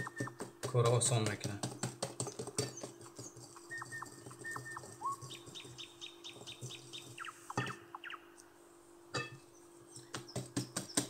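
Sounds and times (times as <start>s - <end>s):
small bird chirping: 0.0s - 0.4s, 2.2s - 8.5s, 9.4s - 11.0s.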